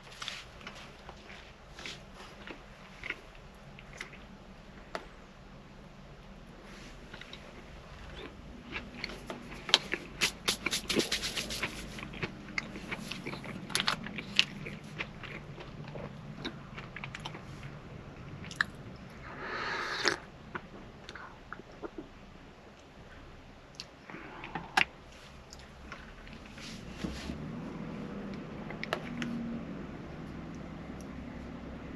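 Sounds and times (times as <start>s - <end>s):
rustling: 0.0s - 3.2s, 9.1s - 12.1s
food crunching and crackling: 0.0s - 5.1s, 6.8s - 19.3s
low steady hum: 0.0s - 31.9s.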